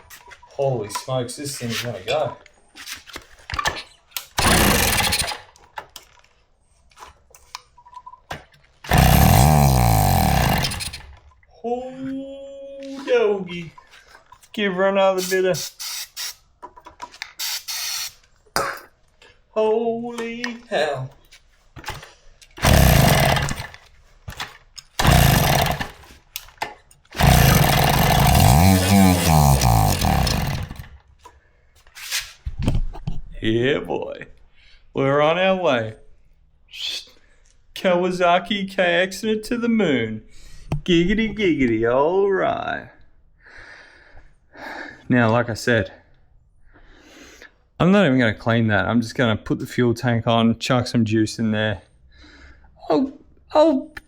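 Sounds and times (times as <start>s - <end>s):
two-stroke engine kick start burst: 4.4s - 5.6s, 8.9s - 11.2s, 22.6s - 23.8s, 25.0s - 26.2s, 27.1s - 31.0s.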